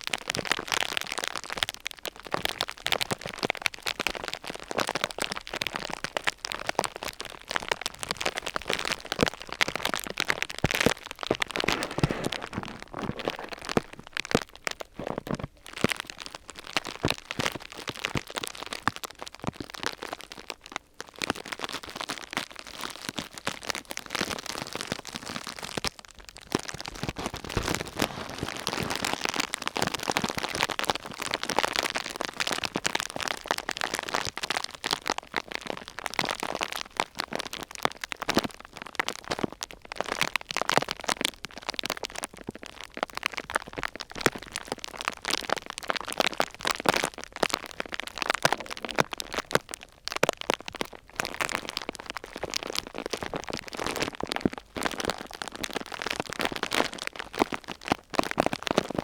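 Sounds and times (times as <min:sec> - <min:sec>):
sheet material crumpling: 0:09.9 - 0:15.6, 0:26.7 - 0:29.6.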